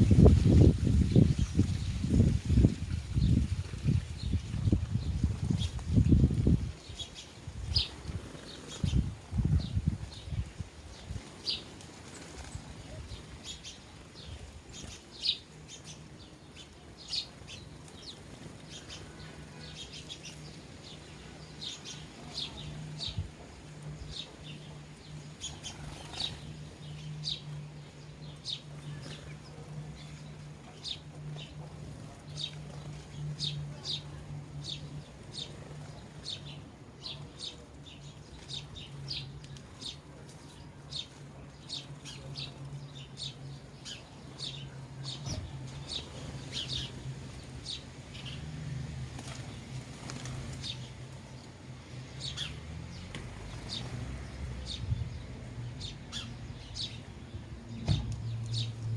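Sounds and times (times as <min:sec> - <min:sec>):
sparrows chirping: 0:00.0 - 0:58.9.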